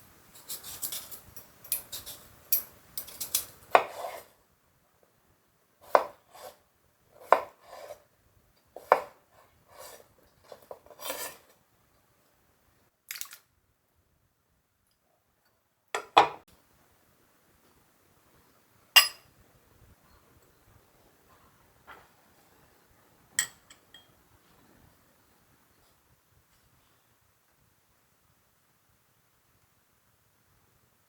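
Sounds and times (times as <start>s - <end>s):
dishes clinking and knocking: 16.0s - 16.4s, 19.0s - 19.3s, 23.4s - 24.2s.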